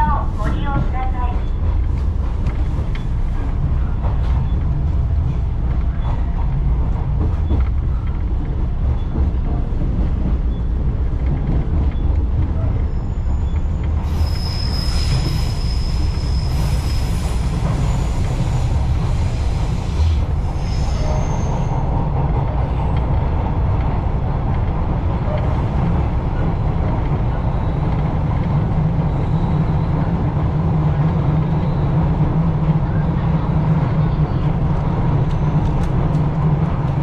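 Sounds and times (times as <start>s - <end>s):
train wheels rumbling on rail: 0.0s - 37.0s
wheel squeal: 12.9s - 18.6s.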